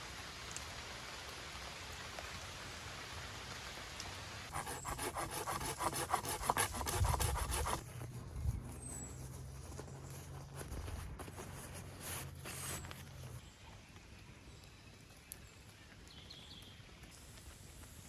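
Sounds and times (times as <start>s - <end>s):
rubbing and scraping strokes: 4.5s - 13.4s
rain hissing: 8.9s - 13.4s, 17.1s - 18.0s.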